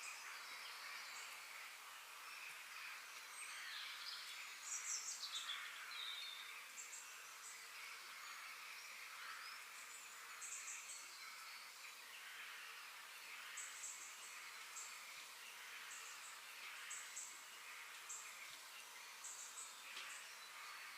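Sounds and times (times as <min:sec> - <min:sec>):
steady outdoor hiss: 0:00.0 - 0:20.9.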